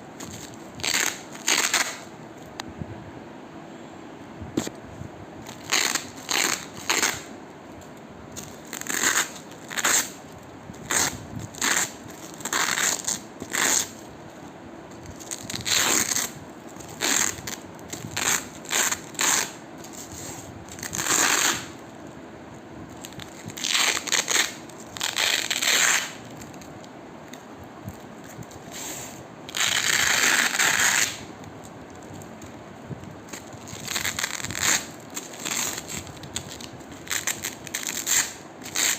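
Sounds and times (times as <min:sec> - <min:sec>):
velcro ripping apart: 0:00.2 - 0:02.1, 0:05.5 - 0:07.3, 0:08.4 - 0:10.2, 0:10.8 - 0:14.0, 0:15.1 - 0:21.8, 0:23.0 - 0:26.7, 0:28.3 - 0:31.3, 0:33.3 - 0:38.9.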